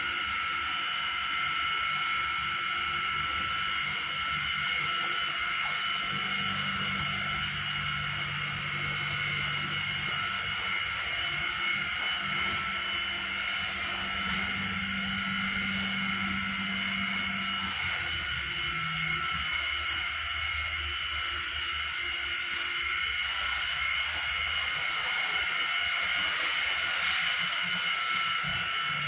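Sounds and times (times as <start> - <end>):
machine whining and humming: 0.0 - 29.0.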